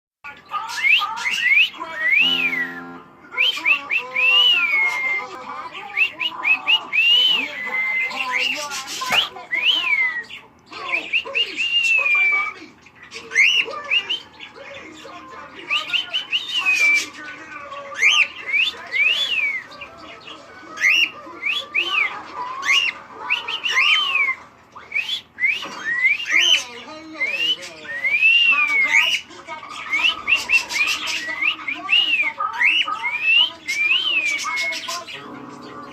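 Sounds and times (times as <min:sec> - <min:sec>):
cockatiel whistling: 0:00.7 - 0:05.3, 0:20.8 - 0:29.2.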